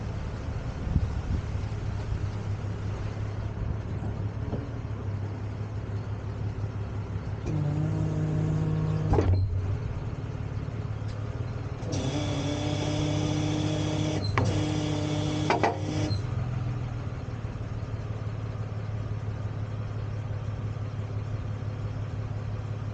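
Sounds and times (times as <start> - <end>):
truck engine idling: 0.0 - 22.9
motor whine: 7.4 - 10.4, 11.7 - 16.3.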